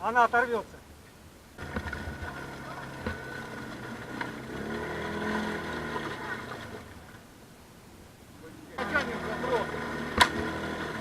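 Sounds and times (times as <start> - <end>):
atv engine revving: 1.6 - 7.2, 8.7 - 11.0
sharp knocks: 3.0 - 3.3, 10.1 - 10.6.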